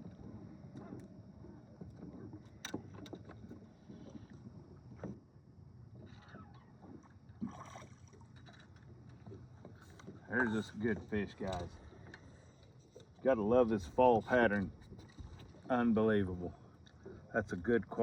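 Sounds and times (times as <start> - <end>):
low boat engine noise: 0.0 - 18.0
light clicks and knocks: 8.4 - 13.2.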